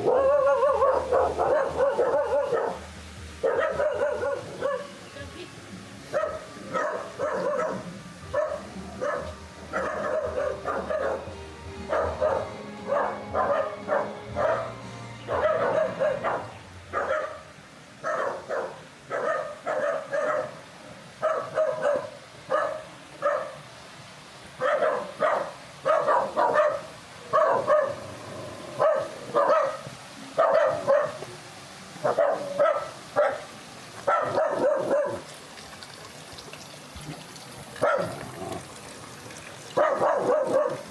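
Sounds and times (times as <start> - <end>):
dog barking: 0.0 - 2.8, 3.4 - 5.0, 6.1 - 11.3, 11.9 - 20.6, 21.2 - 23.6, 24.6 - 28.1, 28.8 - 31.2, 32.0 - 35.3, 37.8 - 38.2, 39.8 - 40.9.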